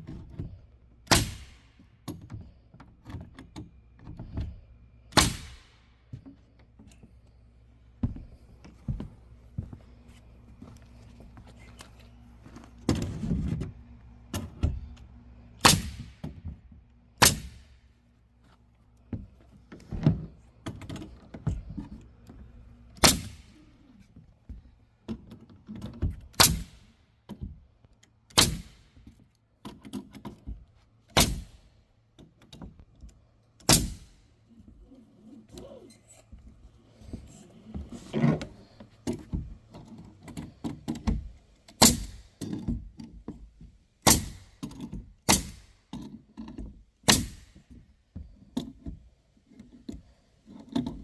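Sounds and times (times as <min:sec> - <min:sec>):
palm nailer striking nails: 0:01.1 - 0:01.8, 0:05.1 - 0:05.8, 0:15.6 - 0:16.4, 0:17.2 - 0:17.8, 0:23.0 - 0:23.6, 0:26.3 - 0:27.0, 0:28.3 - 0:29.2, 0:31.1 - 0:31.6, 0:33.6 - 0:34.2, 0:40.8 - 0:42.7, 0:44.0 - 0:46.1, 0:47.0 - 0:47.7.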